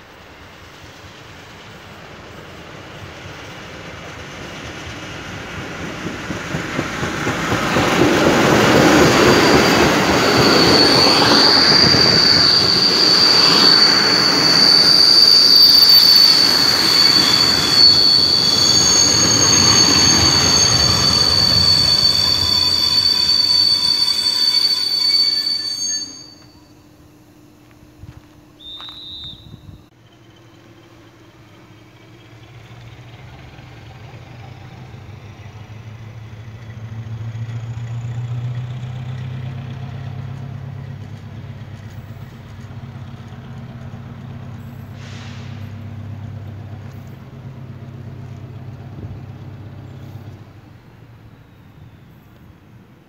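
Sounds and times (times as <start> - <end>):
train wheels clattering over rails: 0.2 - 25.0
high wheel squeal: 6.9 - 26.8, 28.6 - 33.2.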